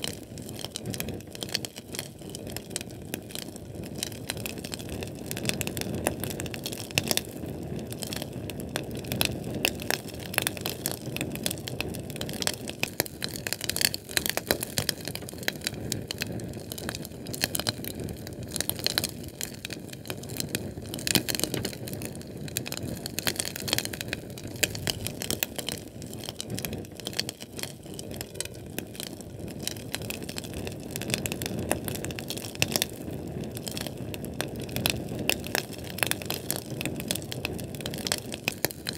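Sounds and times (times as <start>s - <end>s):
fire crackling and popping: 0.0s - 38.9s.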